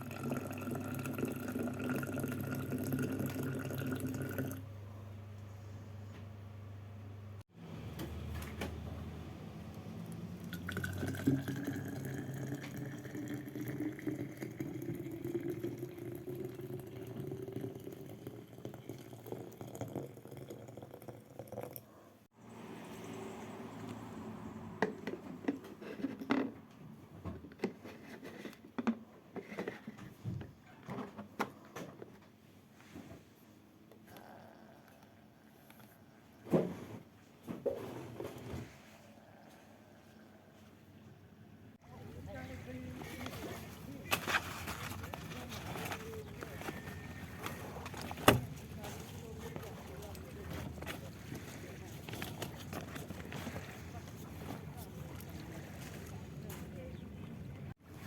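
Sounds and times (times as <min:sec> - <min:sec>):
water running into a container: 0:00.0 - 0:04.6, 0:10.1 - 0:21.8.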